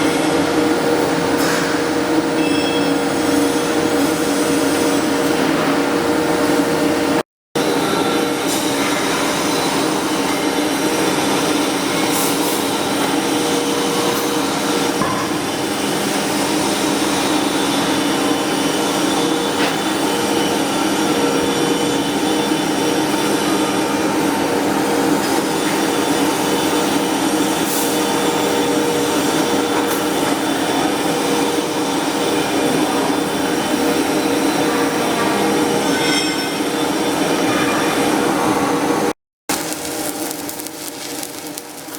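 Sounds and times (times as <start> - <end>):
steady hum: 39.5 - 41.9
welding arc sizzling: 39.5 - 41.9.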